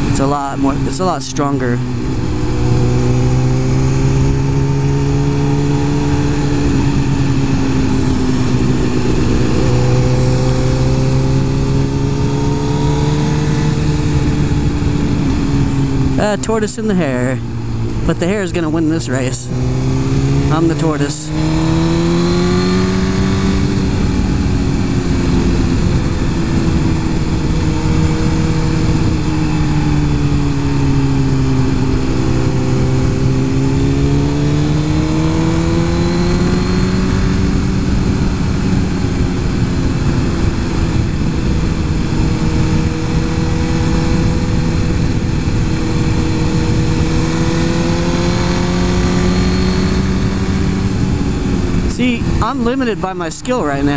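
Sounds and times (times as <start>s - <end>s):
motorcycle engine running: 0.0s - 53.9s
wind noise: 21.3s - 53.9s.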